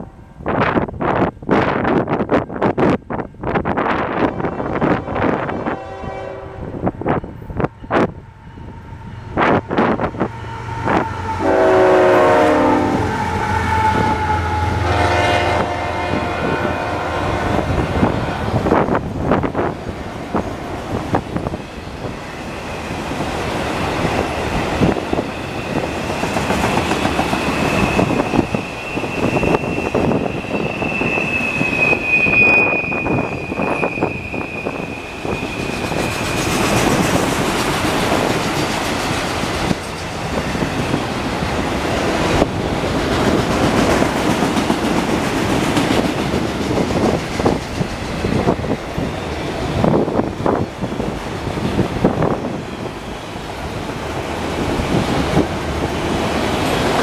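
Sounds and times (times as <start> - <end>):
train wheels rumbling and clattering: 15.6 - 57.0
high wheel squeal: 24.1 - 37.2.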